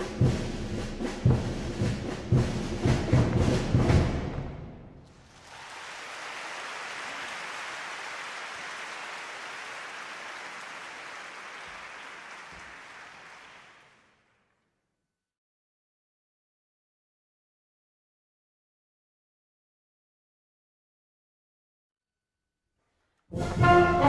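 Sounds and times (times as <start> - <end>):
audience applause: 5.1 - 14.3.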